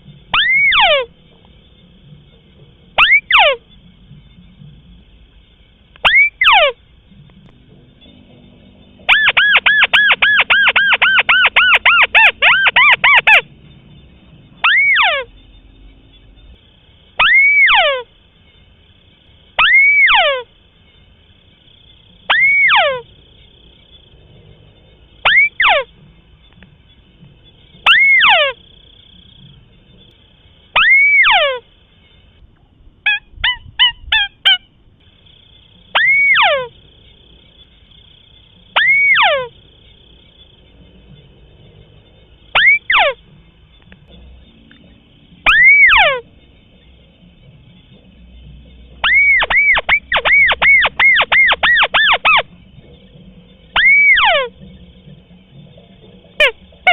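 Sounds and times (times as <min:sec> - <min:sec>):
bird nasal call: 0:00.3 - 0:01.2, 0:03.0 - 0:03.7, 0:06.0 - 0:06.9, 0:09.0 - 0:13.5, 0:14.6 - 0:15.4, 0:17.2 - 0:18.2, 0:19.6 - 0:20.6, 0:22.2 - 0:23.2, 0:25.2 - 0:26.0, 0:27.7 - 0:28.9, 0:30.7 - 0:31.7, 0:33.0 - 0:34.8, 0:35.9 - 0:36.8, 0:38.7 - 0:39.6, 0:42.5 - 0:43.3, 0:45.4 - 0:46.4, 0:49.0 - 0:54.9
bird chattering notes: 0:09.0 - 0:13.5, 0:17.2 - 0:18.1, 0:22.2 - 0:23.1, 0:27.7 - 0:28.7, 0:30.8 - 0:31.6, 0:36.0 - 0:36.8, 0:38.8 - 0:39.6, 0:42.6 - 0:43.2, 0:48.8 - 0:56.9.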